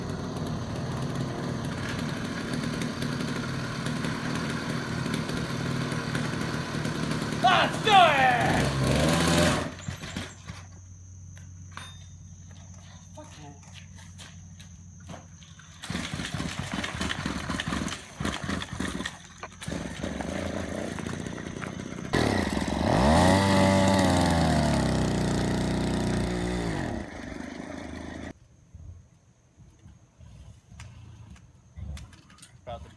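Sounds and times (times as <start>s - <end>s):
small motorbike engine running: 0.0s - 10.8s, 15.6s - 28.4s.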